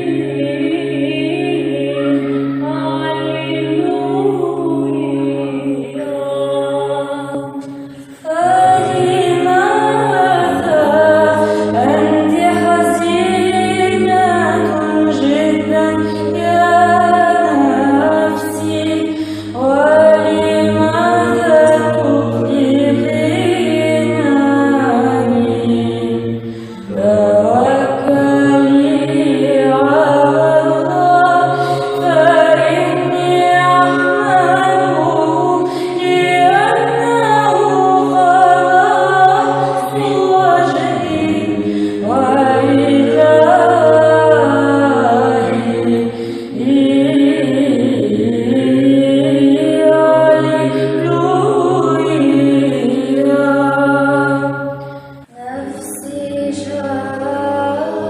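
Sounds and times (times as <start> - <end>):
low vocal drone: 0.0 - 58.0
women's choir chanting: 0.0 - 58.0.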